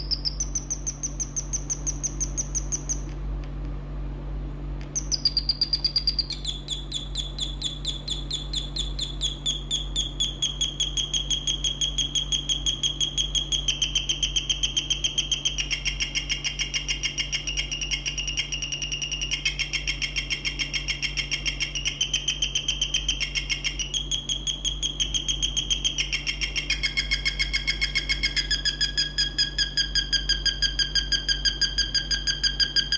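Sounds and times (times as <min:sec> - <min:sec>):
electronic bird chirps: 0:00.0 - 0:03.2, 0:04.8 - 0:32.9.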